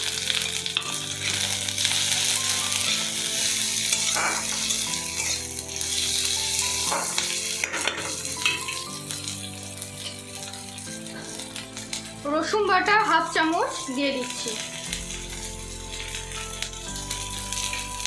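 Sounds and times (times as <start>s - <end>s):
vegetables sizzling in hot oil: 0.0s - 18.0s
stirring in a pan: 0.2s - 12.2s.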